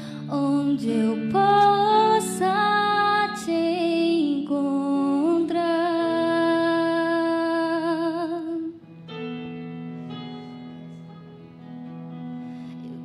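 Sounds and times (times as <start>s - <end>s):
person singing with vibrato: 0.0s - 8.8s.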